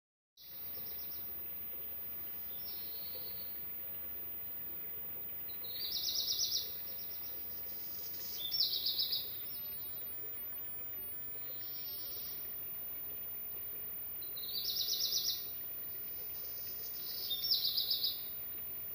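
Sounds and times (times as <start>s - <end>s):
background hiss: 0.4s - 18.9s
songbird trilling: 2.5s - 3.5s, 5.5s - 7.3s, 8.1s - 10.0s, 14.2s - 15.5s, 16.4s - 18.2s.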